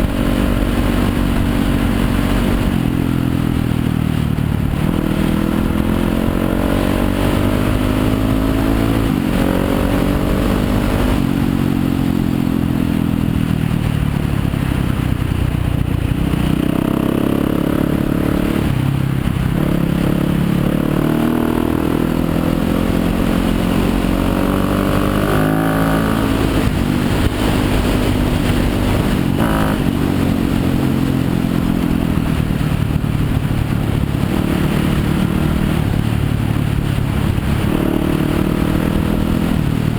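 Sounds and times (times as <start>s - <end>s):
dirt bike engine revving: 4.7s - 12.2s, 16.4s - 31.8s.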